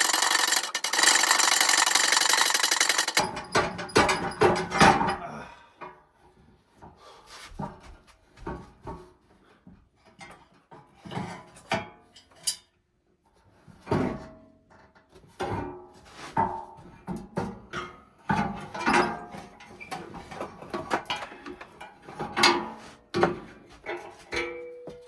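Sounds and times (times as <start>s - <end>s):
hand tools knocking and scraping: 0.0s - 5.2s, 16.3s - 25.0s.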